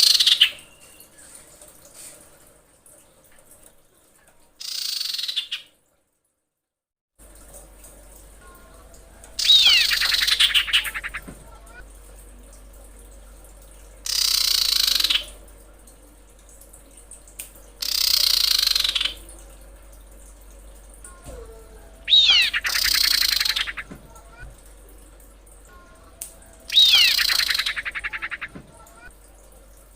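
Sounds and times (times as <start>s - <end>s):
bird trilled whistling call: 9.4s - 11.2s, 14.1s - 15.3s, 21.3s - 23.9s, 25.7s - 28.6s
harsh rasping bird notes: 21.1s - 29.1s.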